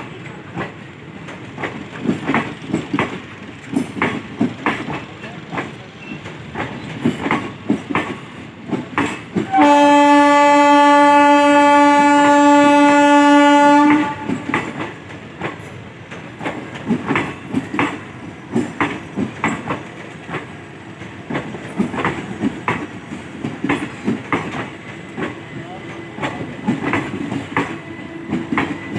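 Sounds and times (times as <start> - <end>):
train wheels clacking: 0.0 - 28.9
train horn blast: 9.5 - 14.4.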